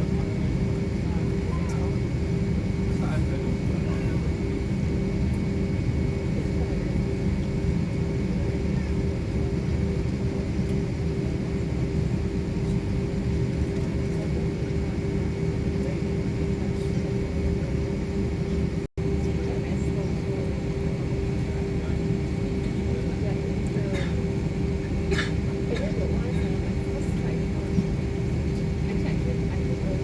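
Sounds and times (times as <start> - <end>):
airliner engines droning: 0.0 - 30.0.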